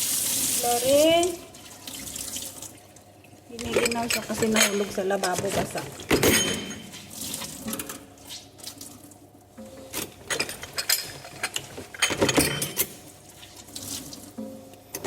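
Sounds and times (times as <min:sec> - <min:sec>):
running water: 0:00.0 - 0:05.2
clicks and clatter at kitchen sink: 0:03.5 - 0:07.0.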